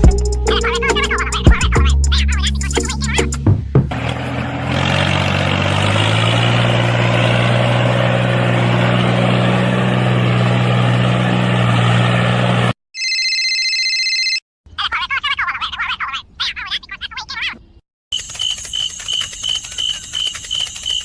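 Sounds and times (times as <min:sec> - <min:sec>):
electronic ringing tone: 0:13.0 - 0:14.4
mini tractor engine running: 0:18.2 - 0:21.0.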